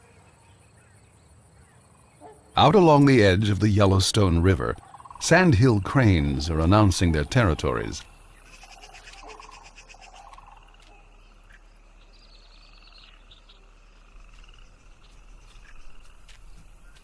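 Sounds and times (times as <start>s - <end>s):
cranes calling: 6.5s - 11.7s, 14.1s - 17.0s.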